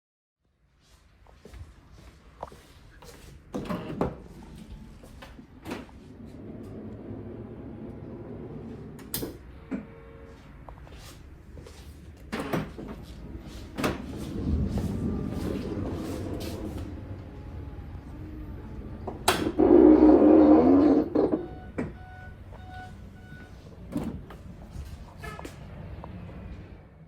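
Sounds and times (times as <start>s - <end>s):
sliding door motor drone: 3.6s - 10.3s, 12.3s - 21.7s.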